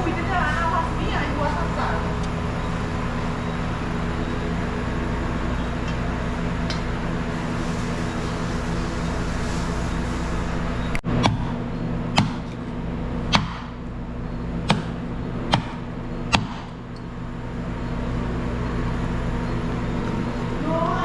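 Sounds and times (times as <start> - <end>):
steady low hum: 0.0 - 21.0
knife chopping on cutting board: 11.2 - 11.5, 12.2 - 12.5, 13.3 - 13.7, 14.6 - 16.7.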